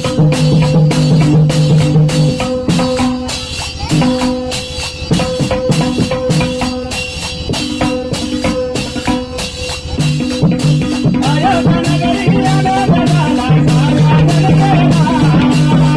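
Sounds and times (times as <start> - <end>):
fast hand drumming: 0.0 - 15.9
held melody notes: 0.0 - 15.9
jingling hand percussion: 0.0 - 15.9.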